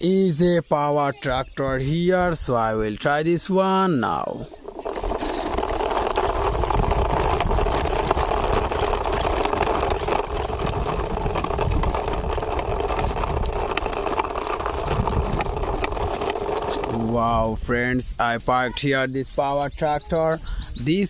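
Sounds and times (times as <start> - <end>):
engine-like running noise: 4.3 - 17.6.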